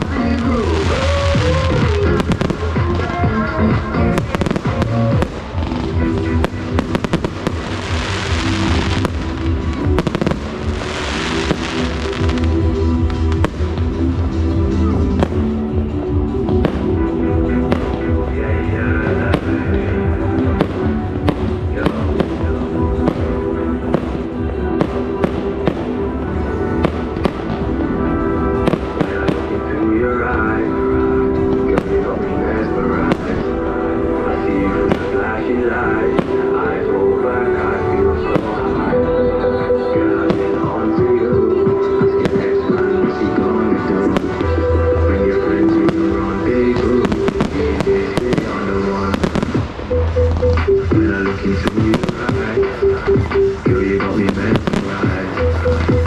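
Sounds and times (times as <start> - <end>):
fireworks hissing crackle: 0.0 - 3.2, 4.1 - 14.4
dance music with bass beat: 0.0 - 10.8, 49.2 - 56.0
loud dance music: 0.0 - 26.1, 28.4 - 56.0
fireworks bangs and crackles: 0.0 - 56.0.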